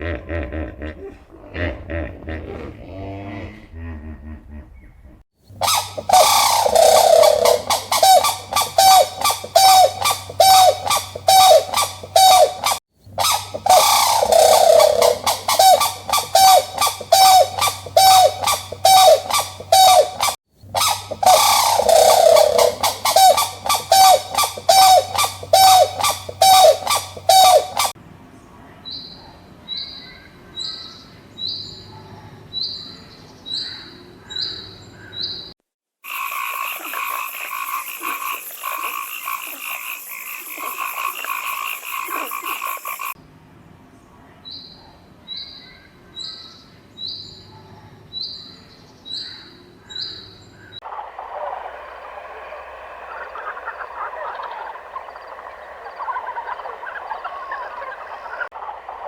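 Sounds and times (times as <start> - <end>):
short high peeps: 5.6 - 27.9
animal calling loudly: 5.6 - 28.0, 50.8 - 58.5
different animal call: 5.6 - 28.0, 50.8 - 58.5.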